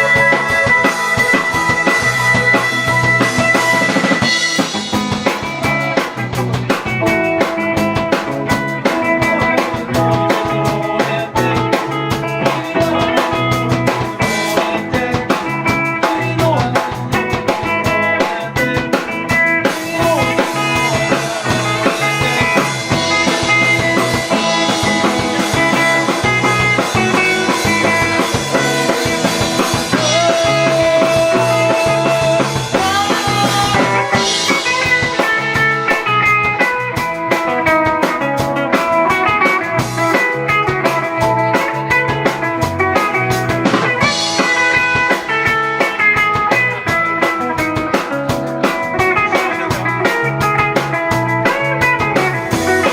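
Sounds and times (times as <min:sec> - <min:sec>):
drum kit beat: 0:00.0 - 0:52.9
electric guitar: 0:00.0 - 0:52.9.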